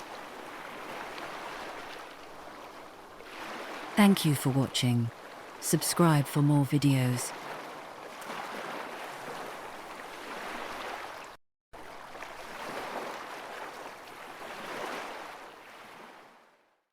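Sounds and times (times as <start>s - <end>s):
ocean waves washing in: 0.0s - 16.7s.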